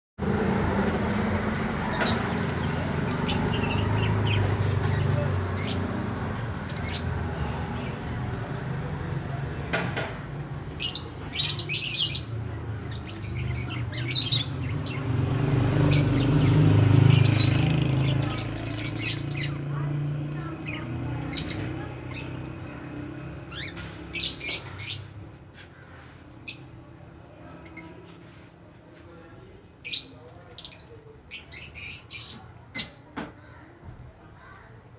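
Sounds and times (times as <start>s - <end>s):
parrots chirping: 1.4s - 8.0s, 10.8s - 15.2s, 15.8s - 19.9s, 20.6s - 25.3s.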